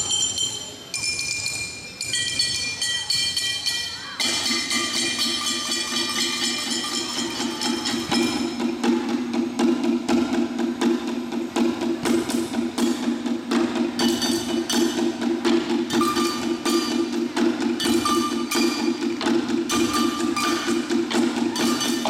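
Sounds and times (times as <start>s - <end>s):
strikes on kitchenware: 19.7s - 20.9s.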